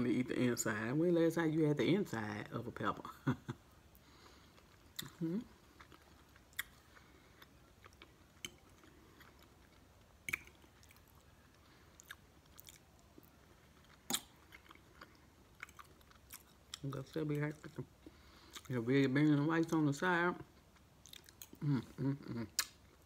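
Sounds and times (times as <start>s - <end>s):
quiet chewing: 3.9s - 18.8s, 20.4s - 23.0s
wet mouth clicks: 10.3s - 10.6s.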